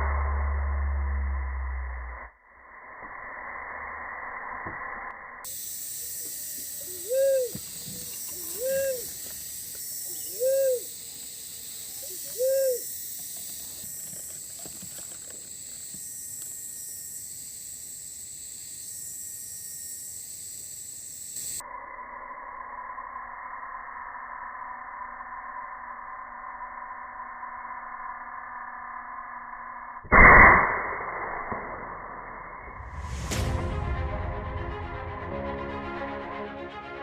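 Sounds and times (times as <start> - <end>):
steady high hiss: 5.5 - 14.7
dove cooing: 6.8 - 9.3, 10.0 - 12.9.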